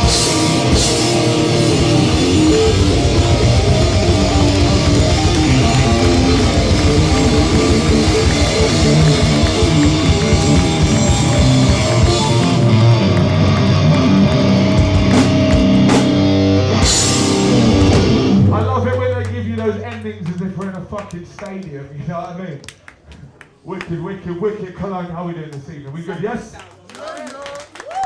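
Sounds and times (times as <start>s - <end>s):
distorted electric guitars: 0.0s - 20.6s
drum kit: 0.0s - 20.6s
hardcore band playing loud: 0.0s - 20.9s.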